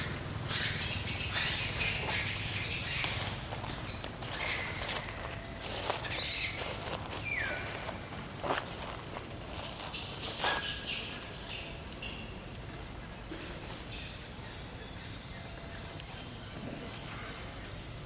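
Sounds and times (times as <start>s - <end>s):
monkey squealing: 0.0s - 3.3s, 6.0s - 7.4s.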